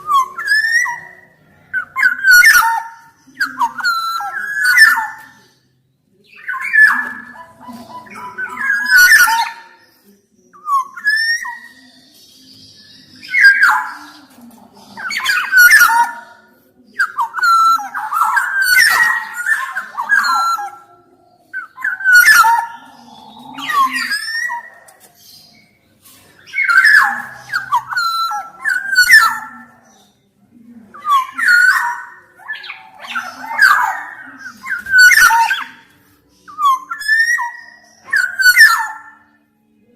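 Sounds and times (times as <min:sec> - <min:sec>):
bird singing whistled notes: 0:26.4 - 0:30.1, 0:31.0 - 0:39.9.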